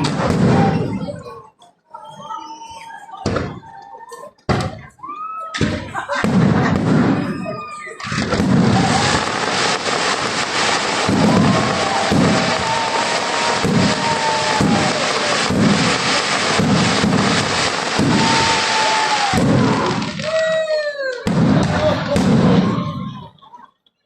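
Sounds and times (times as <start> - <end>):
deep fireworks booms: 0.0 - 1.1, 5.6 - 23.3
fireworks crackling and popping: 0.0 - 1.6, 5.6 - 23.3.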